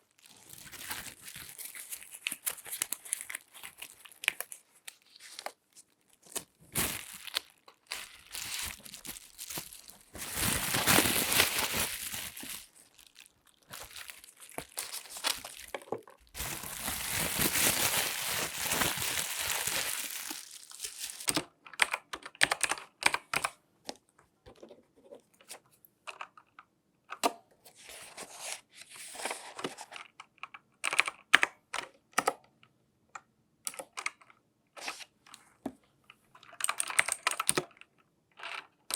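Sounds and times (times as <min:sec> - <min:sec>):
gloves crinkling and rubbing: 0:00.0 - 0:21.3.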